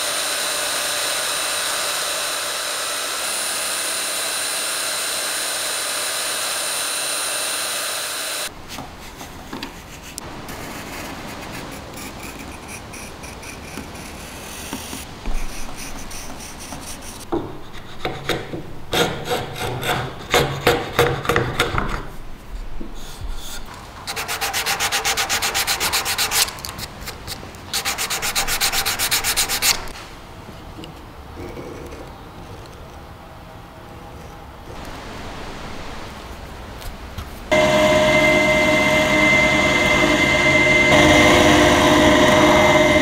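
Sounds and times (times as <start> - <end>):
sandpaper sanding wood: 9.0 - 17.2, 23.3 - 26.5, 27.7 - 29.9.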